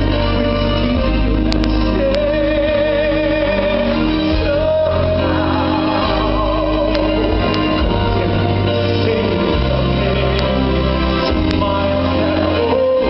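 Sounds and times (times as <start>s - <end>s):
band playing ballad: 0.0s - 13.0s
person singing with vibrato: 0.0s - 13.0s.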